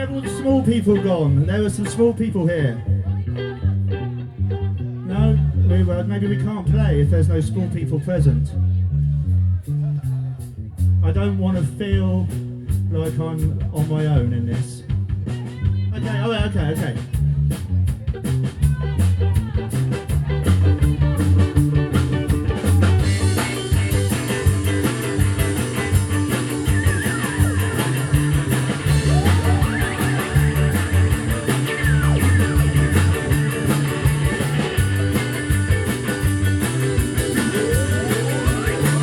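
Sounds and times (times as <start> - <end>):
drums: 0.0 - 4.0, 8.9 - 39.0
electric guitar: 0.0 - 6.6, 18.1 - 39.0
bass line: 0.0 - 39.0
sliding high notes: 22.8 - 39.0.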